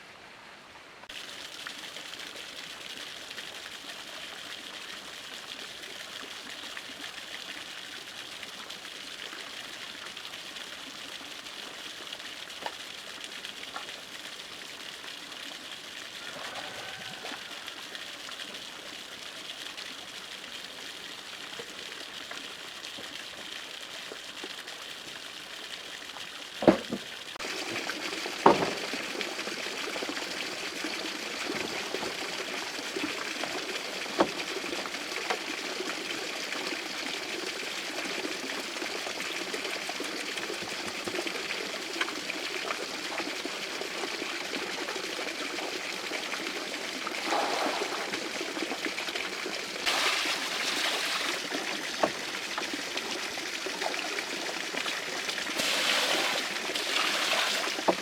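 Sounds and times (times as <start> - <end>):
water trickling and pouring: 1.1 - 58.0
water splashing: 22.8 - 35.5, 46.8 - 58.0
sharp knocks and clicks: 26.6 - 27.1.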